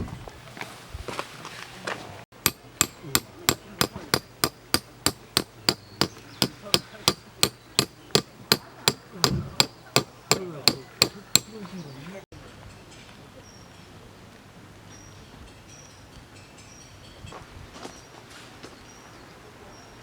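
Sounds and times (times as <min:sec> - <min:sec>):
hammer driving tent pegs: 0:02.4 - 0:11.6.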